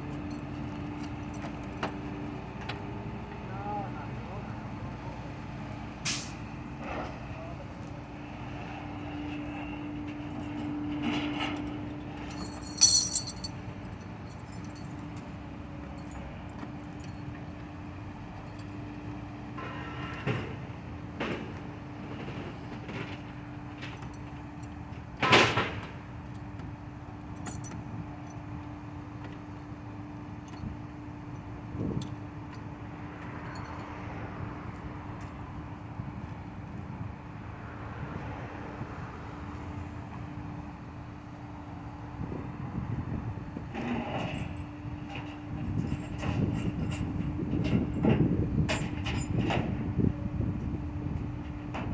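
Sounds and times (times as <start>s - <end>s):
road noise: 0.0s - 51.9s
tow truck engine rumbling: 0.0s - 51.9s
sharp metallic clink: 12.3s - 13.6s.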